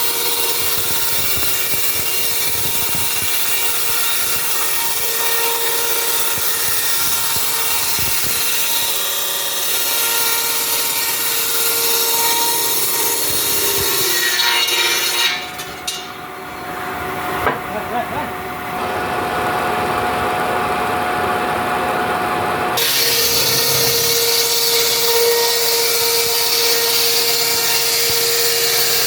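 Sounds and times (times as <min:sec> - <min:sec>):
saw cutting through wood: 0:00.0 - 0:16.2, 0:22.8 - 0:29.0.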